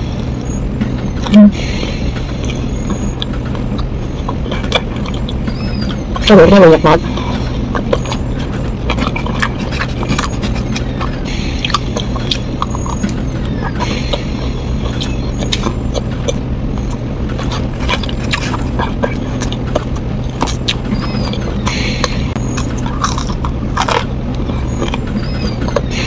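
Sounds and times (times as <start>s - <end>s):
low hum: 0.0s - 26.0s
person chewing: 1.2s - 6.3s, 7.0s - 26.0s
mouth clicks and wet smacks: 7.2s - 14.3s, 14.9s - 25.9s.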